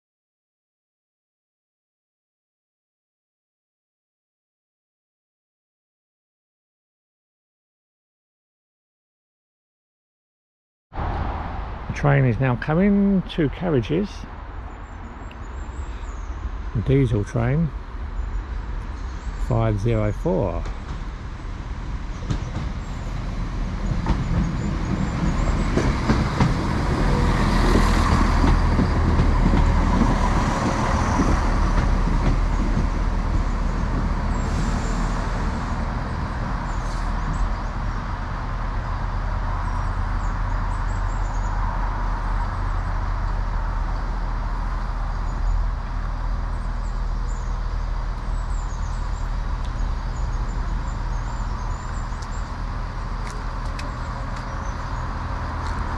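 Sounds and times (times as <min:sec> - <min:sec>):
diesel train engine drone: 0:11.0 - 0:55.9
train wheels clicking and rattling: 0:22.1 - 0:37.7, 0:48.0 - 0:55.9.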